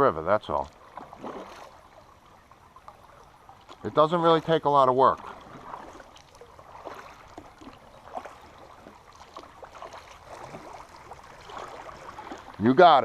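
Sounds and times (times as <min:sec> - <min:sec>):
creek water rushing: 0:00.0 - 0:13.0
paddle splashes and knocks: 0:00.0 - 0:13.0.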